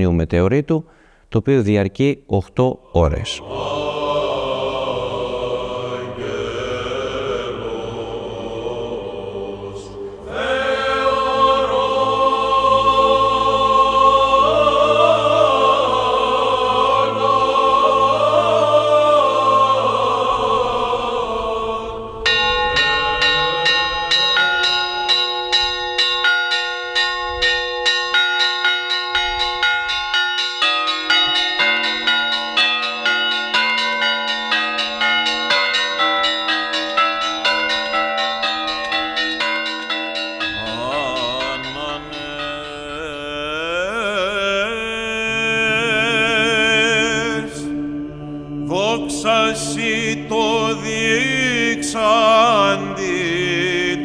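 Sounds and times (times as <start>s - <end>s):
choir chanting: 2.8s - 54.0s
church bells ringing: 22.0s - 54.0s.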